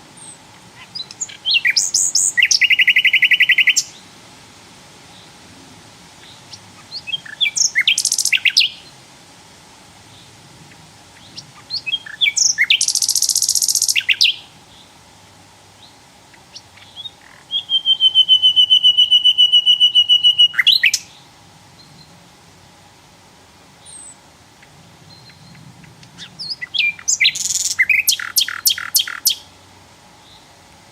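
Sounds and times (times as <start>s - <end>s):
flycatcher singing: 0.1s - 4.0s, 6.2s - 9.0s, 10.1s - 14.9s, 15.8s - 22.2s, 23.8s - 29.5s.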